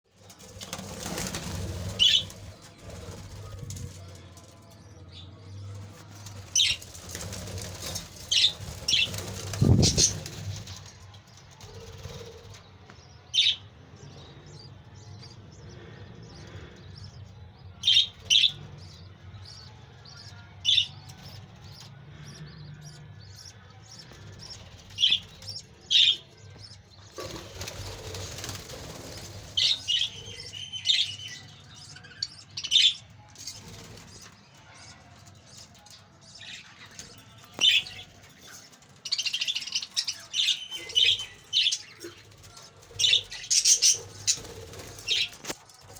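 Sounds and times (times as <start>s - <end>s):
wings flapping: 0.4s - 4.0s, 6.2s - 10.8s, 27.1s - 30.5s, 43.7s - 45.9s
budgerigars chirping: 17.8s - 33.6s.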